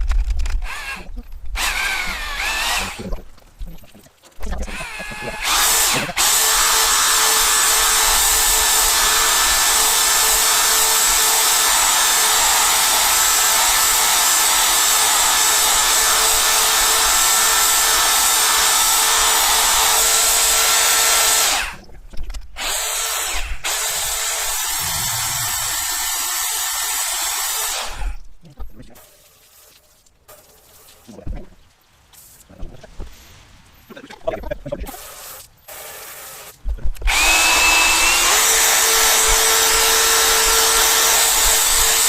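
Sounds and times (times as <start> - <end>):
power drill motor whine: 0.6 - 3.1, 4.7 - 21.8, 22.6 - 28.2, 37.1 - 42.0.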